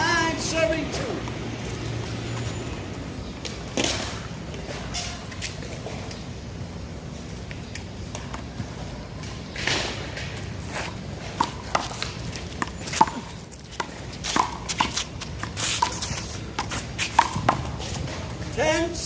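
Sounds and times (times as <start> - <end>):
footsteps shuffling on court: 7.4 - 18.9.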